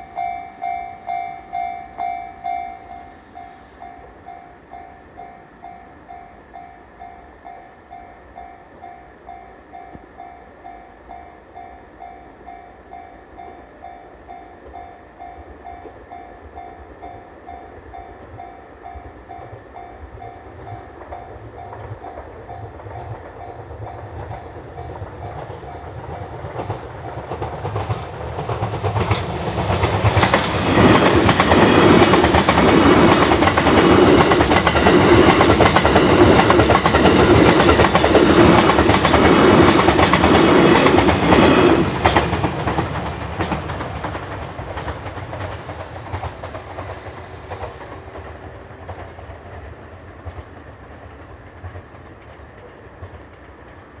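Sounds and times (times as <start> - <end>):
train wheels clattering over rail joints: 17.1 - 54.0.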